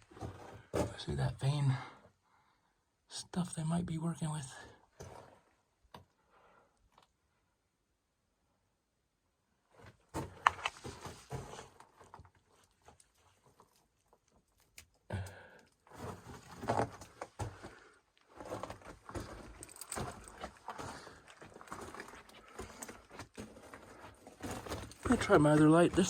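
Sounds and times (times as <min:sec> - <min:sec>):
footsteps crunching over rubble: 0:00.0 - 0:01.0, 0:15.8 - 0:26.0.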